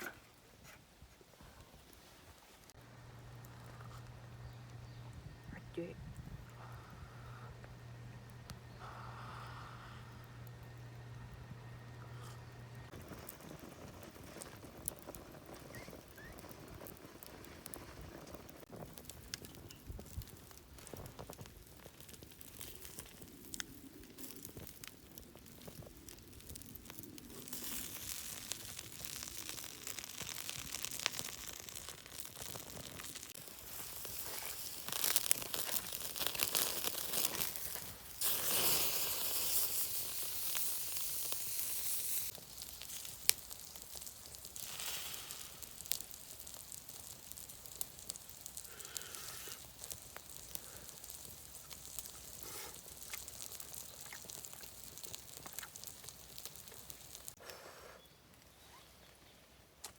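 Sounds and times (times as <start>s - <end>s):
campfire pops and crackles: 1.4s - 57.6s, 58.3s - 59.9s
food sizzling on a grill: 20.9s - 57.4s.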